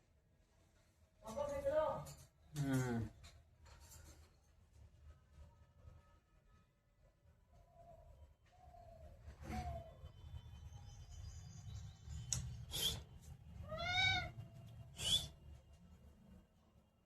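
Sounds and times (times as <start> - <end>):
parrot meow-like call: 13.6 - 14.4
parrot squawks: 13.7 - 14.3.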